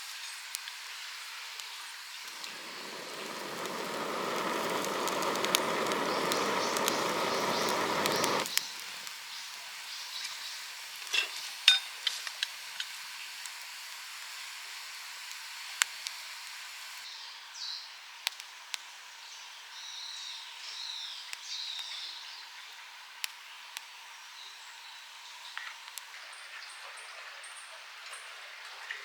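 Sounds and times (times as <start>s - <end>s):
sizzling hiss: 0.0s - 26.1s
sharp crackles: 1.6s - 9.8s.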